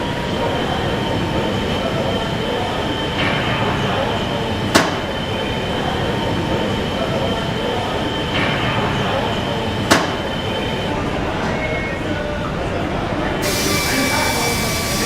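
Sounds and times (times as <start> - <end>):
mechanical whine: 13.4 - 15.0.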